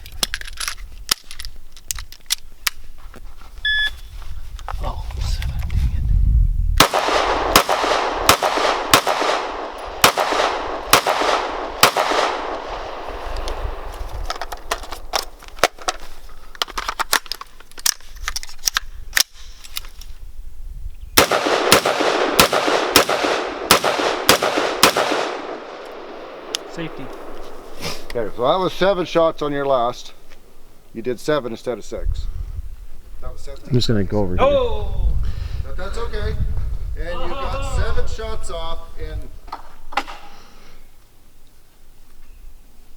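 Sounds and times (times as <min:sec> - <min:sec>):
gunshots echoing: 0:06.8 - 0:14.0, 0:21.2 - 0:27.8.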